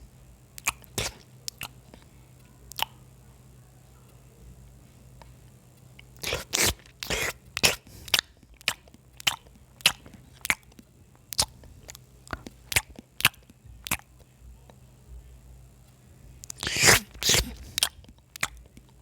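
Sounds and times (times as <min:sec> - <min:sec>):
chewing crunchy food: 0:00.6 - 0:03.1, 0:05.0 - 0:14.8, 0:16.4 - 0:19.0.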